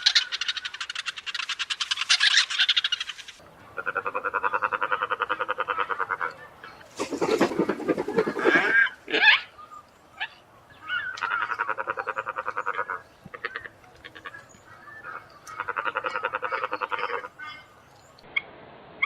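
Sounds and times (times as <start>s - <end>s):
stork croaking rattle: 7.0s - 9.2s, 15.1s - 17.3s.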